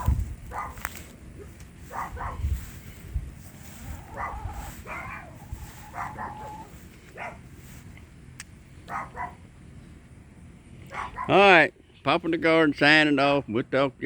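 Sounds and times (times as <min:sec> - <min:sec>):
dog barking and yipping: 0:00.0 - 0:02.5, 0:03.9 - 0:07.5, 0:08.9 - 0:09.4, 0:10.9 - 0:11.4.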